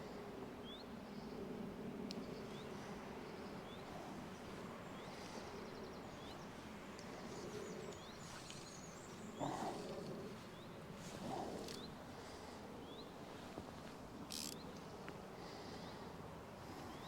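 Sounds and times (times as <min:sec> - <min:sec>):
small birds chirping: 0:02.0 - 0:13.5.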